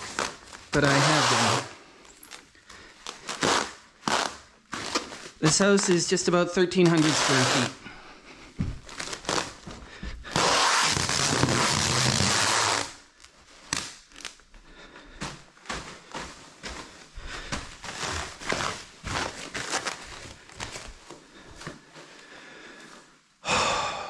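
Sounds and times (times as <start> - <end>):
protective sheet crinkling: 0.0 - 1.7, 2.9 - 7.8, 8.8 - 9.7, 10.3 - 14.4, 17.8 - 21.0.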